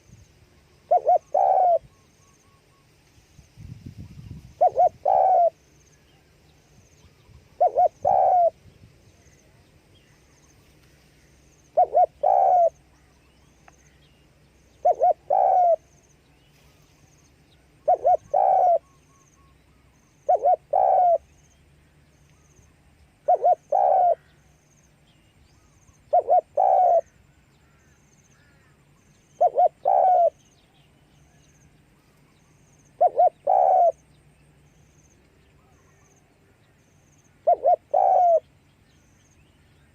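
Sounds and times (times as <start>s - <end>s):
dove cooing: 0.8s - 2.6s, 4.5s - 5.6s, 7.6s - 8.6s, 11.7s - 12.8s, 14.8s - 15.9s, 17.8s - 19.3s, 20.2s - 21.3s, 23.2s - 24.4s, 26.1s - 27.2s, 29.3s - 30.5s, 33.0s - 34.1s, 37.4s - 38.5s.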